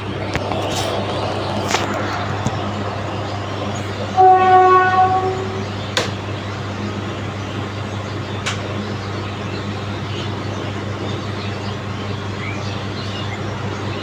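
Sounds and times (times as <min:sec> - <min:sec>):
sharp clicks: 0:00.0 - 0:04.0
low machine hum: 0:00.0 - 0:11.1
train horn: 0:02.6 - 0:05.8.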